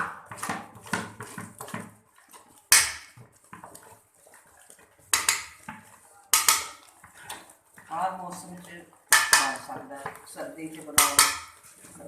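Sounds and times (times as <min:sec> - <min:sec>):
metal utensils clattering on pot: 0:05.0 - 0:12.0.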